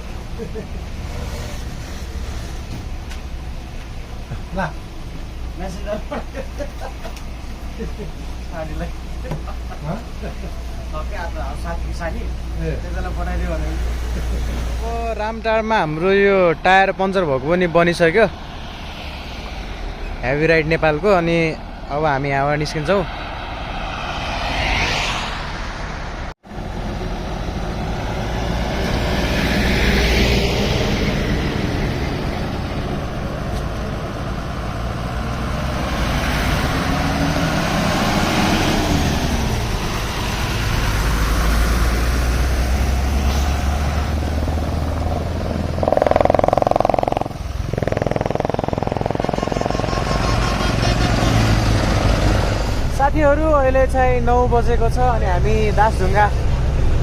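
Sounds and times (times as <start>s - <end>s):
truck engine running: 44.0s - 51.8s
loud horn blare: 49.3s - 51.5s.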